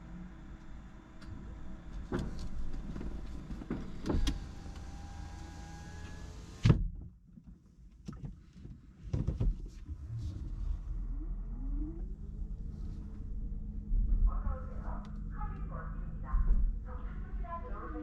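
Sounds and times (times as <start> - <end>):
car power window whining: 2.1 - 6.8.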